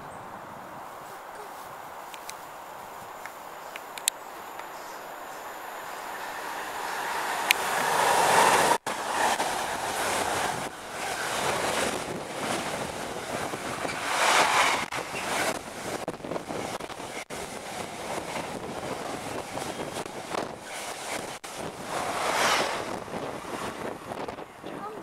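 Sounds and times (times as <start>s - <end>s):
freight train rushing past: 3.4s - 25.0s
wind buffeting the microphone: 7.4s - 25.0s.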